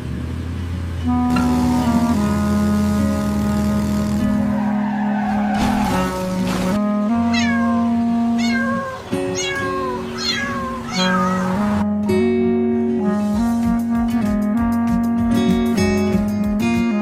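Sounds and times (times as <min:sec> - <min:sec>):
background music with held notes: 0:01.0 - 0:04.9, 0:05.6 - 0:17.0
cat meowing: 0:07.2 - 0:11.8.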